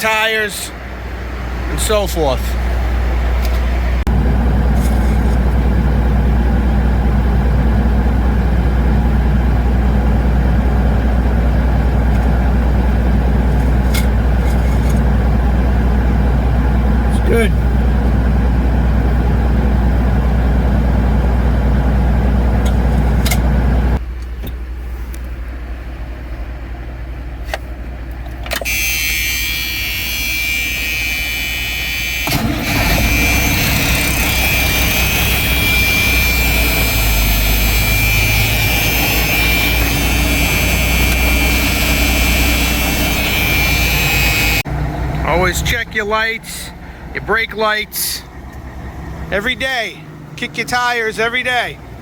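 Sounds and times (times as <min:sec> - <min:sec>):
truck engine idling: 0:00.0 - 0:52.0
high steady whine: 0:28.7 - 0:44.6.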